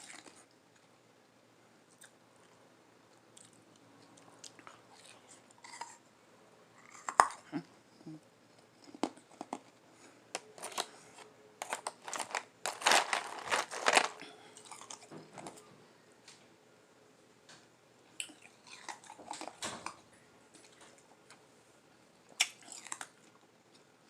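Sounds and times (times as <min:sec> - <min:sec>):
person chewing ice: 0:10.4 - 0:15.6, 0:18.2 - 0:19.6, 0:22.3 - 0:23.8.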